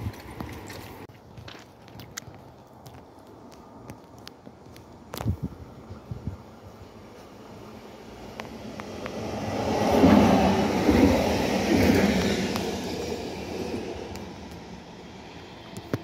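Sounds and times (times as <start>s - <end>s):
train wheels rumbling on rails: 8.1s - 16.0s.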